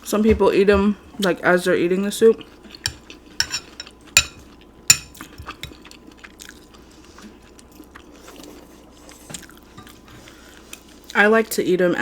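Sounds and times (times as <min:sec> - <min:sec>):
quiet chewing: 0:02.3 - 0:11.2
spoon clinking on bowl: 0:02.9 - 0:05.1.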